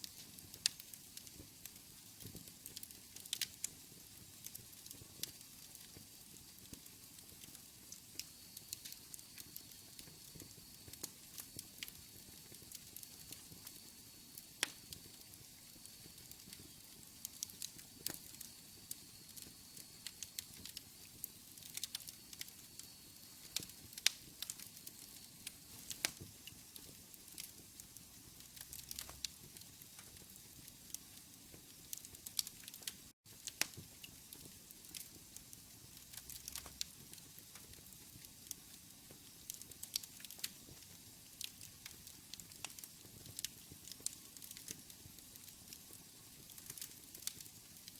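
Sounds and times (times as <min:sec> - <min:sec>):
fire crackling and popping: 0:00.0 - 0:47.9.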